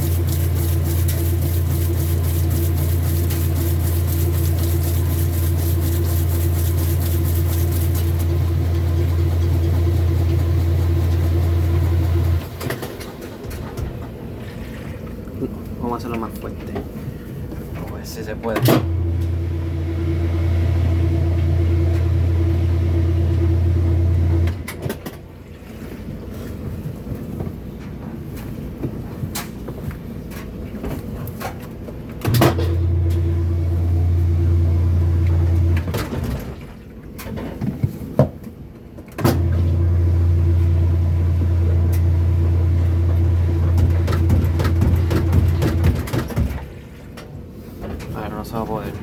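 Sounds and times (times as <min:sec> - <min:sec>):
washing machine motor humming: 0:00.0 - 0:16.3, 0:17.5 - 0:24.8, 0:32.3 - 0:36.2, 0:39.3 - 0:47.0.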